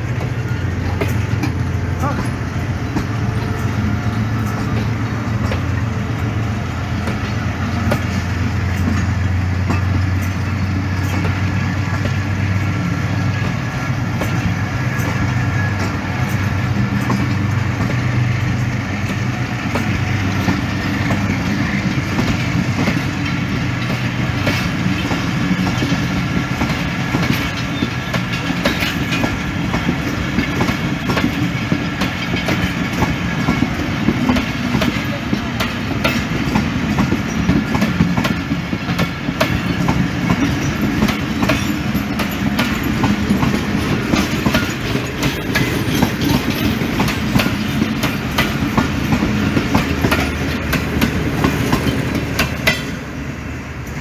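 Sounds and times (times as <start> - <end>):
train wheels rumbling on rails: 0.0 - 54.0
wheel clicks on rail joints: 13.4 - 53.0.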